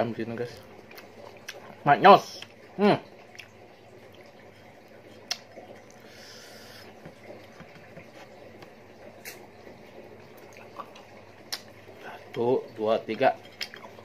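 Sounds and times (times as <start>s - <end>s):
person chewing: 3.3s - 3.6s, 5.2s - 7.6s, 9.2s - 9.4s.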